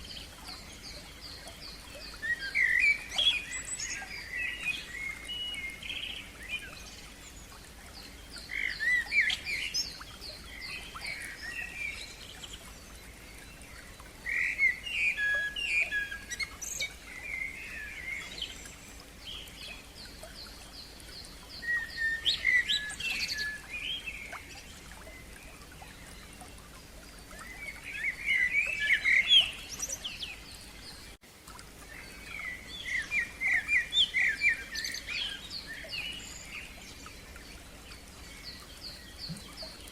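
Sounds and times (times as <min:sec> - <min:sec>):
faint background hiss: 0:00.0 - 0:39.9
songbird singing: 0:00.0 - 0:39.9.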